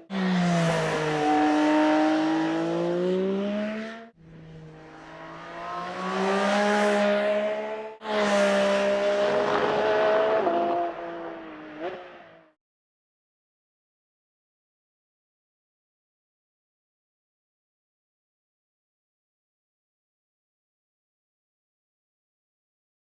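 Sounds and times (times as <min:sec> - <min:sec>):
car engine revving at high revs: 0:00.0 - 0:12.5.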